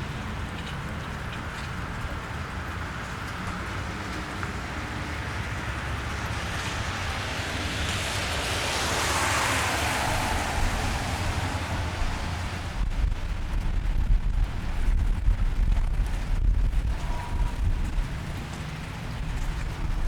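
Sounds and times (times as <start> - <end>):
car tyres hissing on wet road: 0.0 - 20.0
rain: 0.0 - 20.0
low rumble: 9.4 - 18.4.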